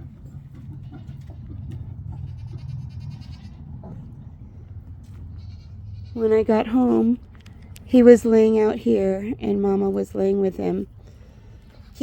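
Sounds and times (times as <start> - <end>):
farm animal bleating cry: 0.0 - 7.2, 11.2 - 12.0
steady low hum: 0.0 - 12.0.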